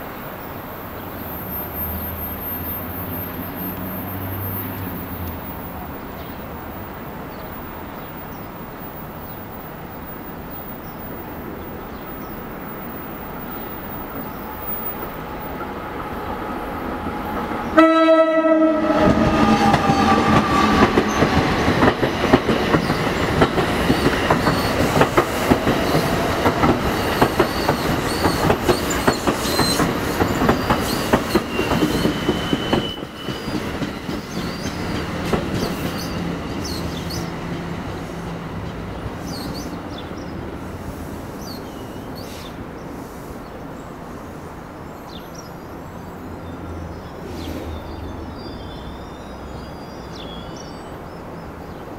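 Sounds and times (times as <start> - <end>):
train horn blast: 17.7 - 21.1.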